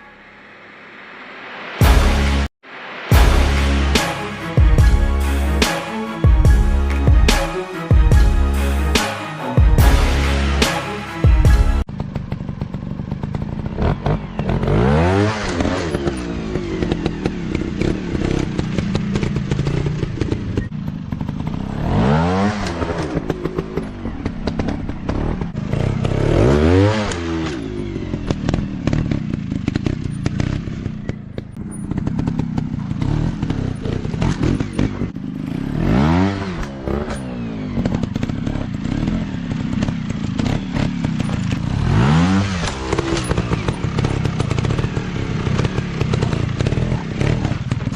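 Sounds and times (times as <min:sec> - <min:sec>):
engine clatter and knocks: 0:11.9 - 0:14.8, 0:15.4 - 0:21.9, 0:27.5 - 0:35.2, 0:36.6 - 0:47.9
dirt bike engines revving: 0:13.3 - 0:47.9.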